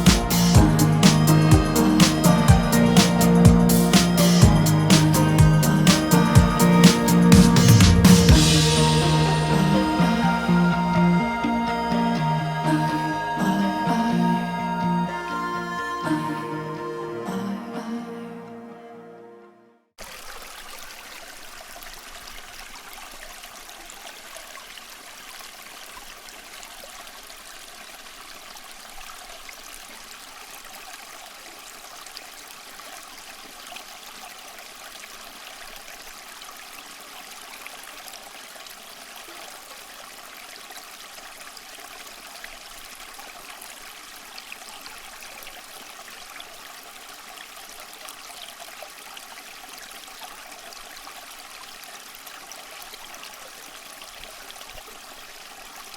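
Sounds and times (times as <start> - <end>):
fountain water trickling: 20.0 - 55.9.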